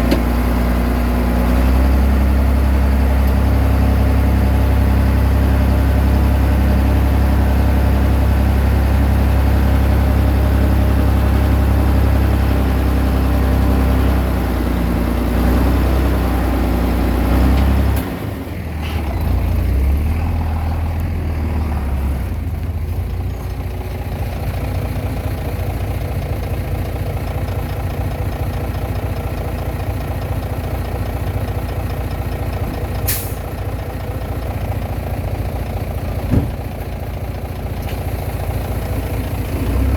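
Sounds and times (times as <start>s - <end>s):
bulldozer diesel engine: 0.0s - 39.9s.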